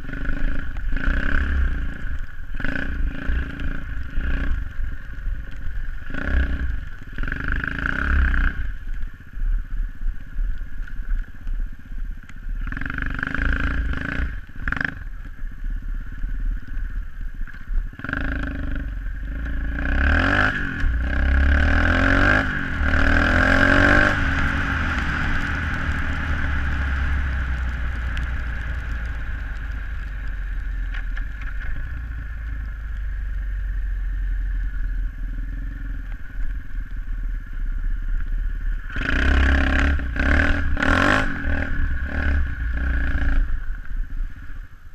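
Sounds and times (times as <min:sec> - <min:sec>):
pit bike engine revving: 0:02.6 - 0:04.7, 0:12.6 - 0:15.1, 0:17.9 - 0:32.3, 0:38.9 - 0:43.6.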